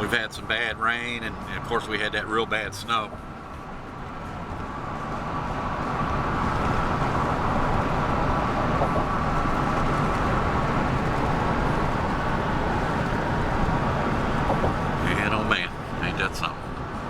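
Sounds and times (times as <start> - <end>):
car road noise: 0.0 - 17.0.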